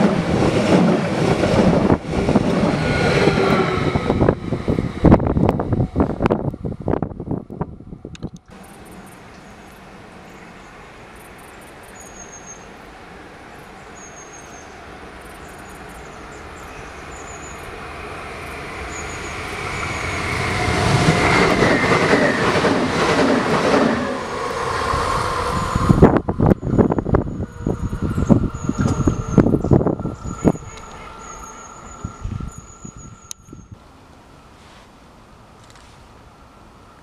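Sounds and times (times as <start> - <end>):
train running past: 0.0 - 34.8
falling whine: 17.2 - 33.8.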